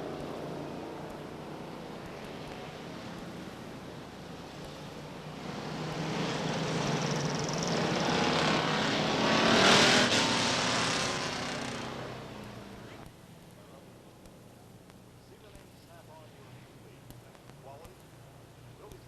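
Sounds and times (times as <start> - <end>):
stock car engines passing: 0.0 - 13.1.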